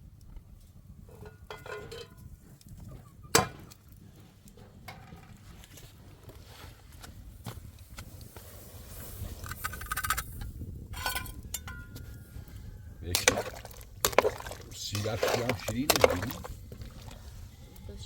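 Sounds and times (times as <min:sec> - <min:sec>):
spoons and dishes clinking: 0:13.2 - 0:17.2.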